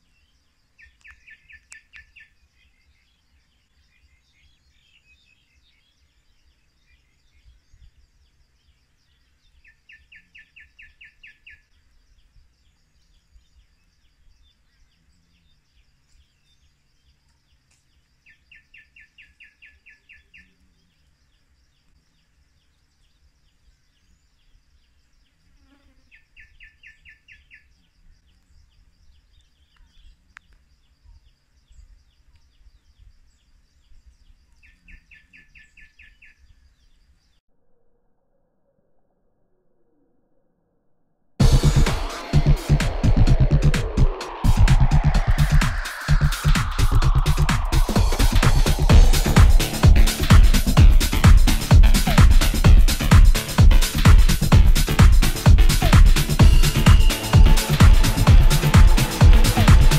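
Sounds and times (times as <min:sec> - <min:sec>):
lower pulsed call: 0:41.4 - 0:59.9.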